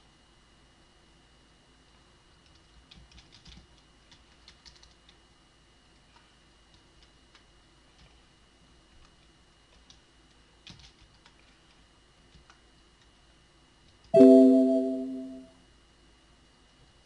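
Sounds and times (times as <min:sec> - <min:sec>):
faint keyboard typing: 0:02.3 - 0:05.2, 0:05.9 - 0:08.3, 0:08.9 - 0:13.1
electronic alert chime: 0:14.2 - 0:15.5.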